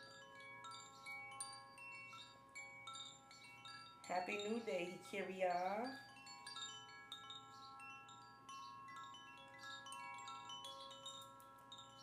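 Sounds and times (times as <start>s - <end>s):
wind chimes ringing: 0.0s - 12.0s.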